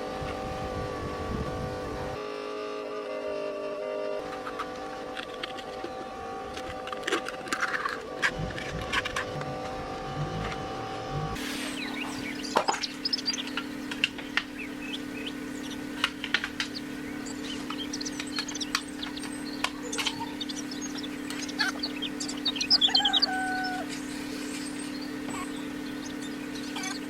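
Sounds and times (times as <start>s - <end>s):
steady low hum: 0.0s - 27.0s
bird chirps and calls: 11.7s - 27.0s.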